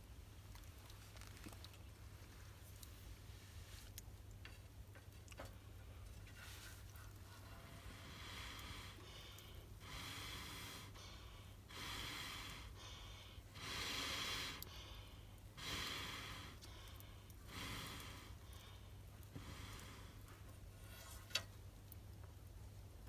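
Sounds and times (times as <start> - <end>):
person breathing slowly: 7.4 - 20.4.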